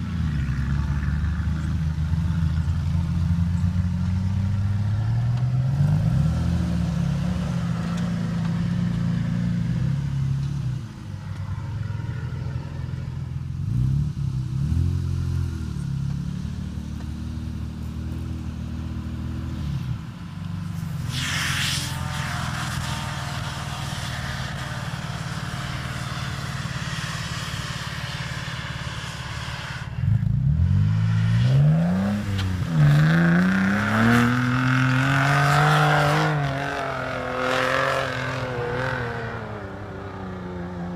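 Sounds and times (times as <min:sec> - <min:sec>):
vehicle engine revving: 0:00.0 - 0:40.9
brief rushing hiss: 0:20.7 - 0:24.8.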